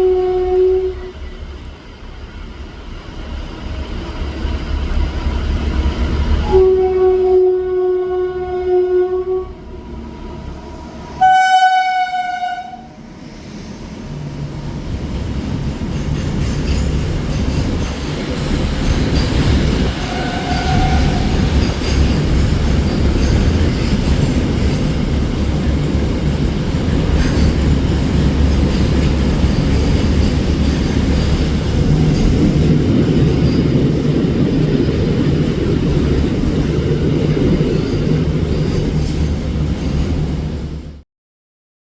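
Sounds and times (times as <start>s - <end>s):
locomotive horn blast: 0.0s - 1.3s, 6.4s - 9.7s, 11.1s - 13.0s, 19.9s - 21.5s
train rumble and wheel noise: 0.0s - 41.0s.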